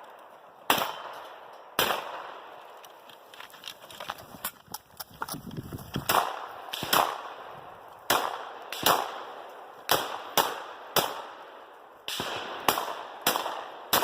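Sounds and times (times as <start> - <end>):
shotgun shots with echo: 0.7 - 1.2, 1.8 - 2.4, 6.1 - 7.4, 8.1 - 11.4, 12.1 - 14.0.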